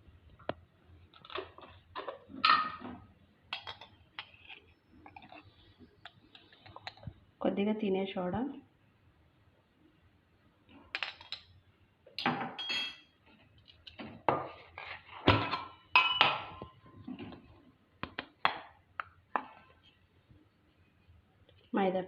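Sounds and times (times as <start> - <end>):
spoon clinking against bowl: 12.6 - 13.1, 15.5 - 16.7.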